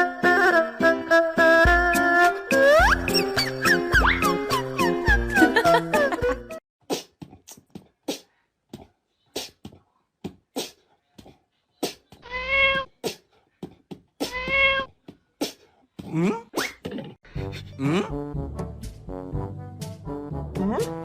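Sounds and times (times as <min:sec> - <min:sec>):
kitten meowing: 0:12.2 - 0:12.9, 0:14.3 - 0:14.9.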